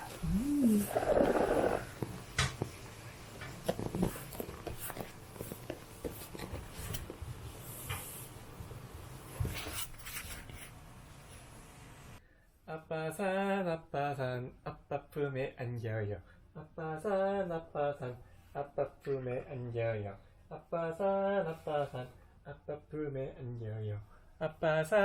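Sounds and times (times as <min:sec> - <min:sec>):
soft rustling: 0:00.0 - 0:08.4.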